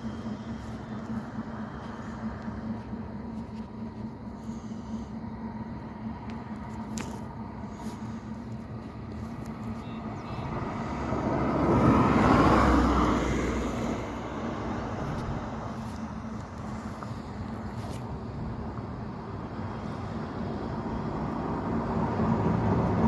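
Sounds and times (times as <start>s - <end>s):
vehicle passing: 0.0s - 18.0s
outdoor noise: 0.0s - 23.0s.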